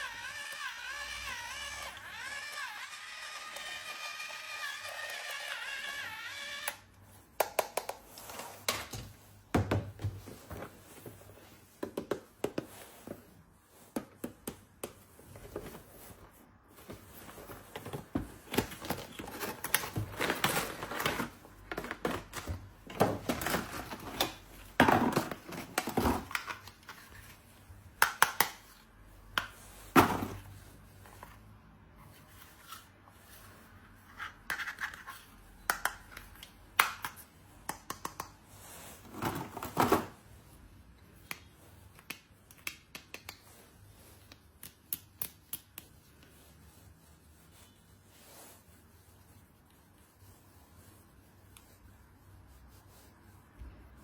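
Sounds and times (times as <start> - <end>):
packaging rustling: 16.8 - 26.8.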